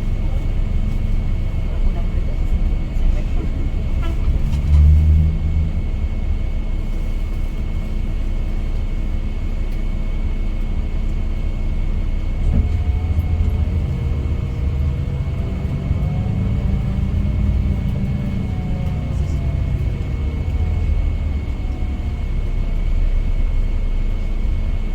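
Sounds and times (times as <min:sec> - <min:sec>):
road noise: 0:00.0 - 0:08.7, 0:12.2 - 0:24.9
diesel engine rumble: 0:00.0 - 0:24.9
bus bump: 0:12.4 - 0:22.4.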